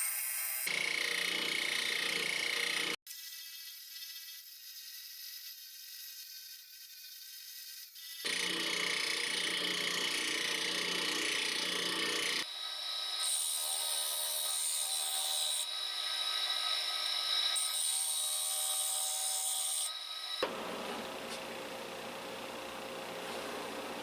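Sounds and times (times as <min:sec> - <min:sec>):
power tool running: 0:19.9 - 0:24.0.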